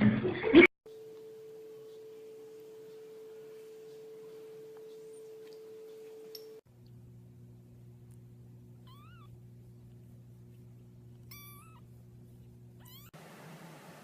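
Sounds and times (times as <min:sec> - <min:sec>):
steady low hum: 0:00.9 - 0:13.1
cat meowing: 0:08.8 - 0:09.3, 0:11.3 - 0:11.9, 0:12.8 - 0:13.2.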